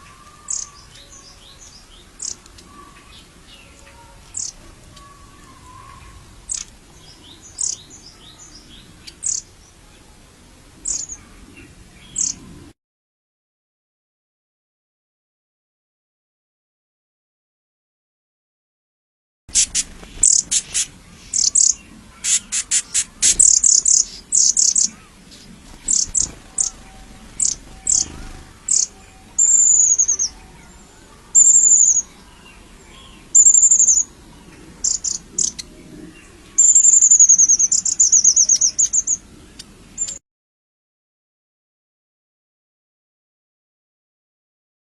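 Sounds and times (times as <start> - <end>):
small birds chirping: 0.0 - 10.2, 10.8 - 12.6, 19.5 - 40.2
slurred whistled bird notes: 25.8 - 30.7.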